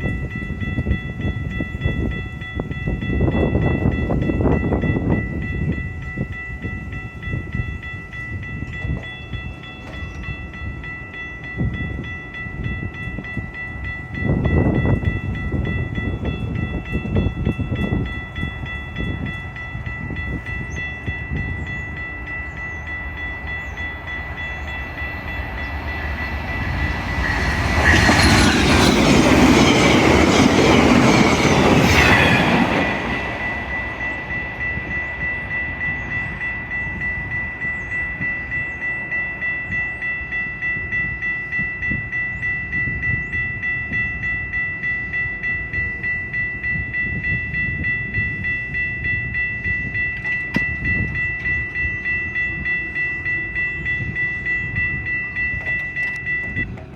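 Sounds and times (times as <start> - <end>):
train passing rush of noise: 0.0 - 56.9
steady high whine: 18.4 - 41.0.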